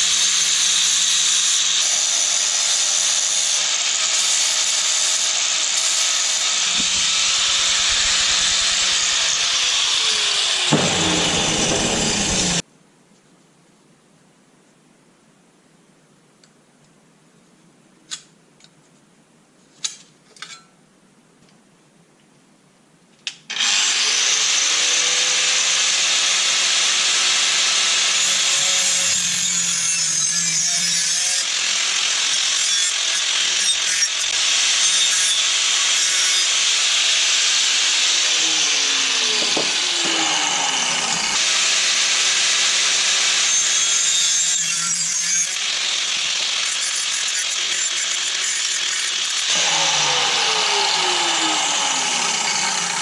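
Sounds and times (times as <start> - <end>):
power tool grinding steel: 0.0 - 12.6, 23.5 - 53.0.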